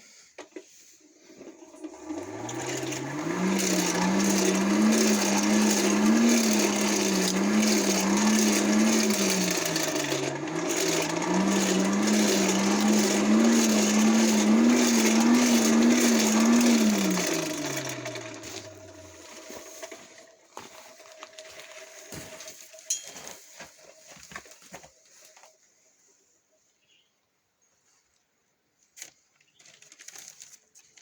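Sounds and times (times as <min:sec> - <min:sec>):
small electric motor running: 0:01.9 - 0:20.2.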